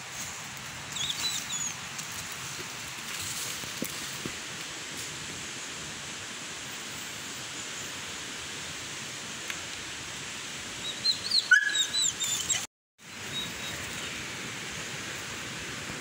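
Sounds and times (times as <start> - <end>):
rushing background hiss: 0.0 - 16.0
bird chirping: 10.8 - 12.6.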